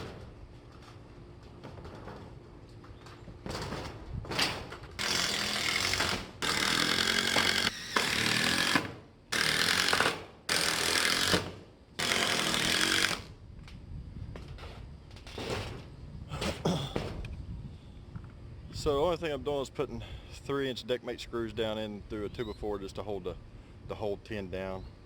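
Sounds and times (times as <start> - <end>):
power drill driving screws: 5.0 - 13.3.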